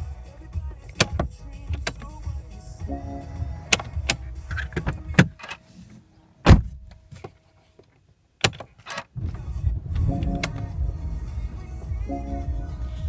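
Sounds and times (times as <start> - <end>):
cabin clicks: 0.8 - 2.2, 3.7 - 5.6, 6.4 - 9.2
car engine running: 9.2 - 13.0.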